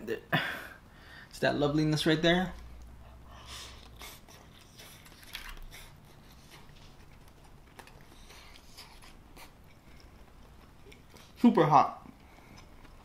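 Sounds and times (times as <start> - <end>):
mouth eating sounds: 3.4 - 13.0.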